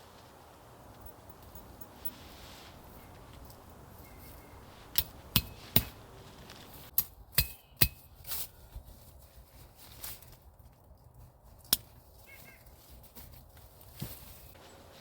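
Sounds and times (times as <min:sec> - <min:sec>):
faint metallic ring: 0:03.0 - 0:04.7
hammer strikes: 0:05.0 - 0:06.0.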